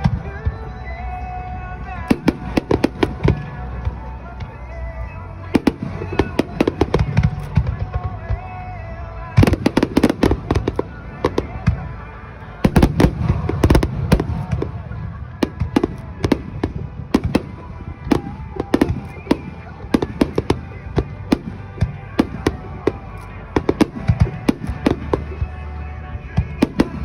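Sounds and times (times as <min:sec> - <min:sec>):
fireworks bangs echoing: 0:01.8 - 0:04.6, 0:05.4 - 0:27.0.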